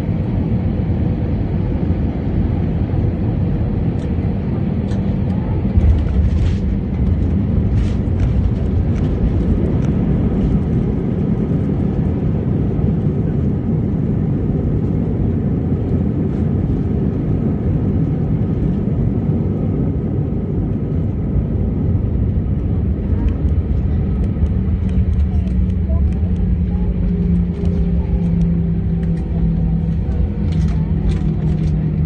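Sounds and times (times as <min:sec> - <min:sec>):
airplane cabin rumble: 0:00.0 - 0:32.0.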